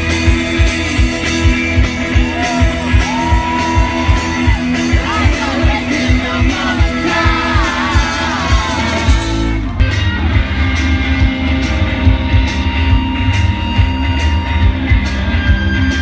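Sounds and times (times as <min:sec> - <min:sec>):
drum beat: 0:00.0 - 0:09.5
electric guitars: 0:00.0 - 0:16.0
person singing: 0:02.4 - 0:09.1.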